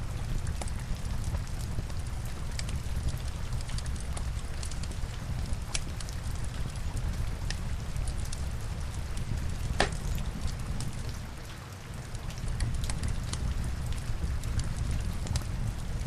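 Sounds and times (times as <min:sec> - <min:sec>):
log fire crackling: 0:00.0 - 0:16.0
rain hiss: 0:00.0 - 0:16.0.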